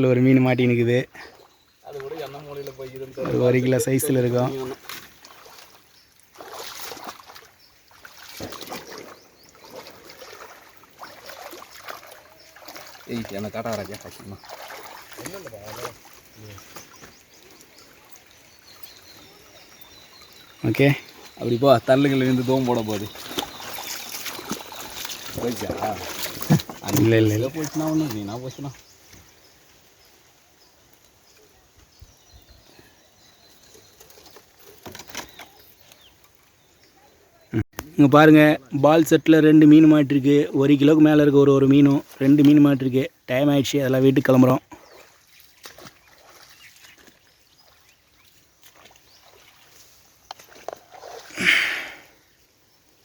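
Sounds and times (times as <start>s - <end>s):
small birds chirping: 0.0s - 53.0s
water sloshing and splashing: 1.1s - 29.3s, 44.2s - 51.9s.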